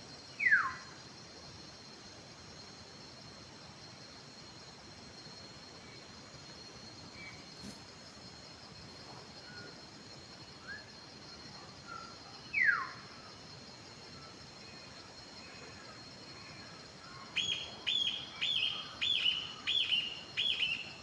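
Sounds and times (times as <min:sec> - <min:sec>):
faint bird chirps: 0:00.4 - 0:00.9, 0:11.5 - 0:13.3, 0:14.2 - 0:21.0.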